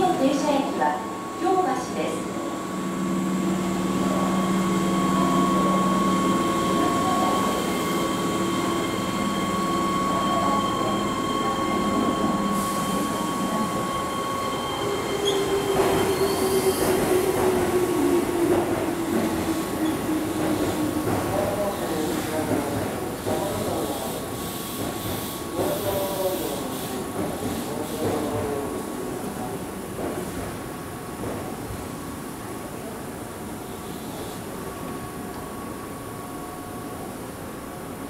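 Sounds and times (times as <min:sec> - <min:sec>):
train whining: 0:00.0 - 0:30.3
electric train braking: 0:02.5 - 0:20.5.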